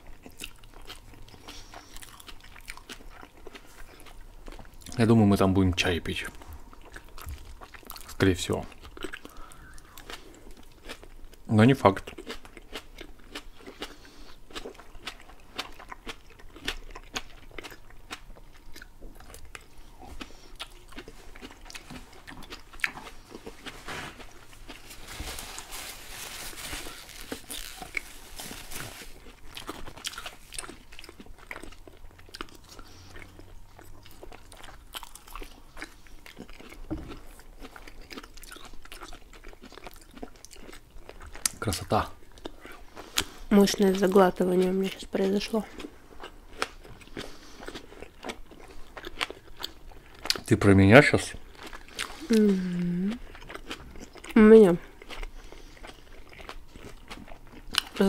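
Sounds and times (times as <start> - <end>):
wet mouth clicks chewing: 6.4 - 11.4, 12.0 - 23.5, 29.5 - 41.7, 53.2 - 54.4
paper wrapper rustling: 23.7 - 29.3.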